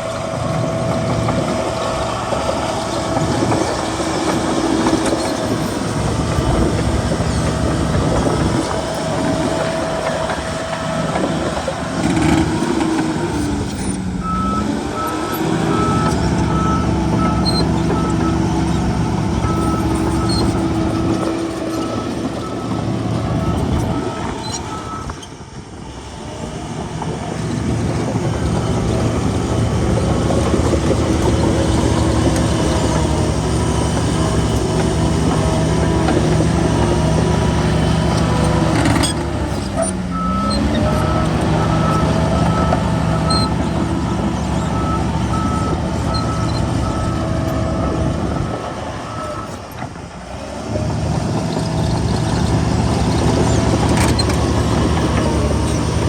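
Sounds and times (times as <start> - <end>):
heavy diesel engine running: 0.0 - 56.0
reversing alarm beeping: 14.2 - 25.2, 39.8 - 49.6.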